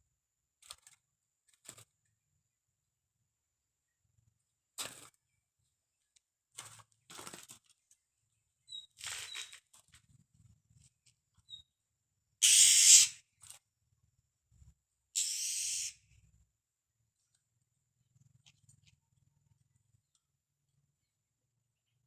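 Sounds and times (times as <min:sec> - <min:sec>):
bird harsh scold calls: 0:12.4 - 0:13.2, 0:15.2 - 0:16.2
faint high bird peeps: 0:12.4 - 0:13.2, 0:15.2 - 0:16.1.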